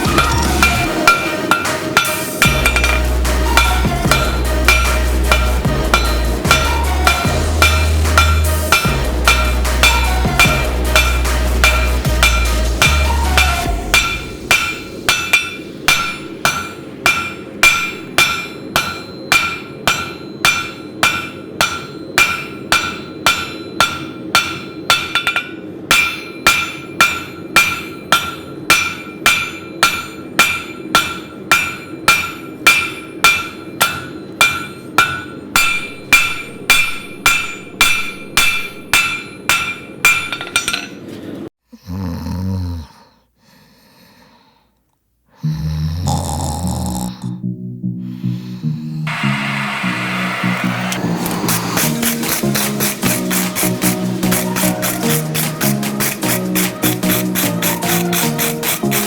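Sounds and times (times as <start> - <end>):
hammer striking steel on anvil: 0.0 - 41.1, 49.1 - 59.0
low breathy sound: 41.6 - 47.4, 48.0 - 49.1.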